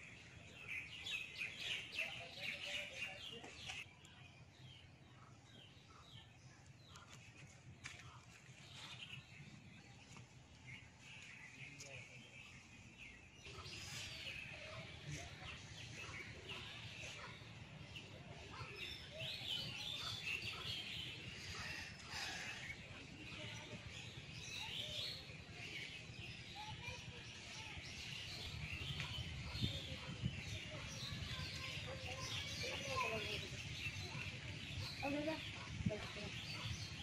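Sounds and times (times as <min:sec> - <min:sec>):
birds chirping and calling: 0:00.0 - 0:03.9, 0:04.7 - 0:37.0.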